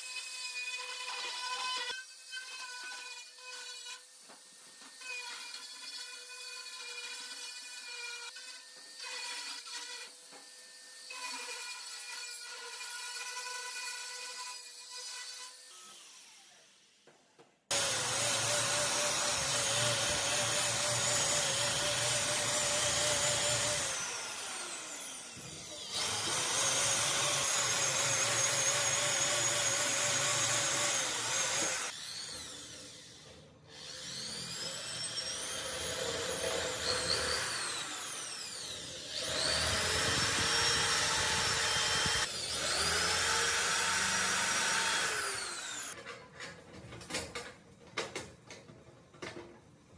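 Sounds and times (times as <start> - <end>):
electric power tool motor: 17.7 - 46.0.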